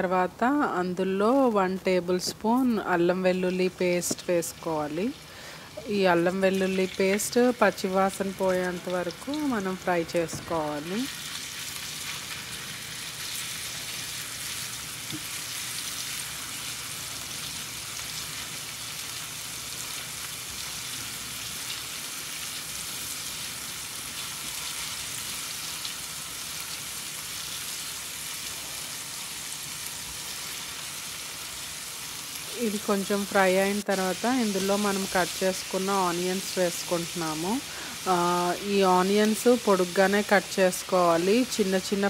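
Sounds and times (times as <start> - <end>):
paste sizzling in oil: 2.2 - 42.0.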